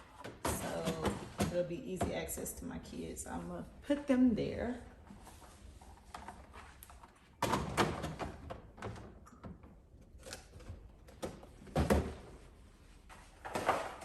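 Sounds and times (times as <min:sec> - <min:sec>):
items knocking and clattering: 0:00.0 - 0:02.3, 0:06.0 - 0:12.4.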